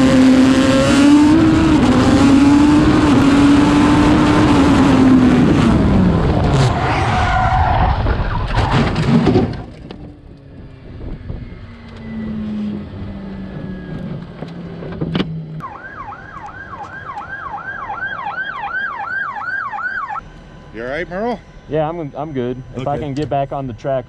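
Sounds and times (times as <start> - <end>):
low hum: 0.0 - 24.0
loud engine-like noise: 9.3 - 18.6, 20.0 - 24.0
emergency vehicle siren: 10.1 - 24.0.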